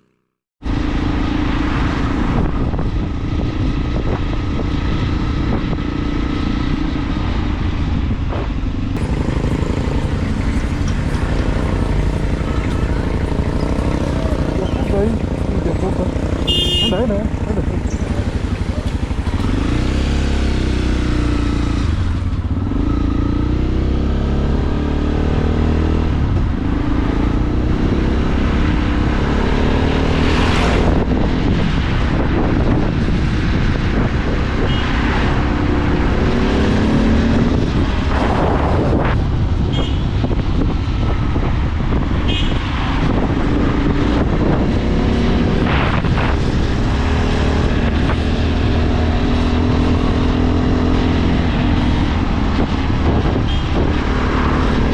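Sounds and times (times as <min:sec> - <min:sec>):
road and wind noise: 0:00.0 - 0:54.9
vehicles whooshing past: 0:00.6 - 0:54.9
motorcycle engine running: 0:08.2 - 0:25.0.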